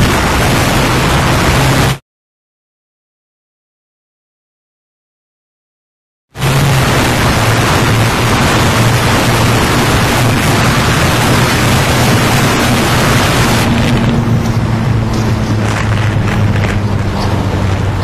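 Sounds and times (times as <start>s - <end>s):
motorcycle engine running: 0.0s - 2.0s, 6.4s - 18.0s
wind rushing over microphone: 0.0s - 2.0s, 6.4s - 18.0s.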